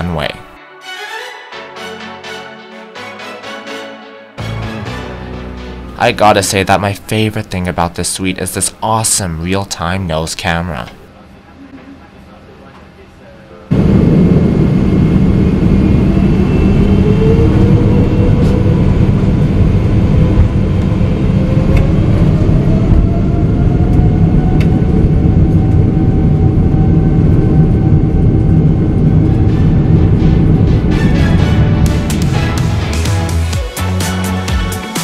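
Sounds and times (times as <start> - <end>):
jet engines rumbling with whine: 6.5 - 33.4.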